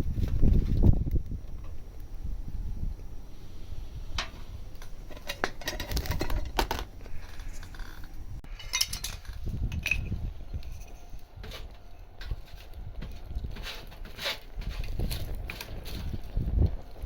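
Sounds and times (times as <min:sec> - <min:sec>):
metal cooking gear clinking: 0:04.2 - 0:16.3.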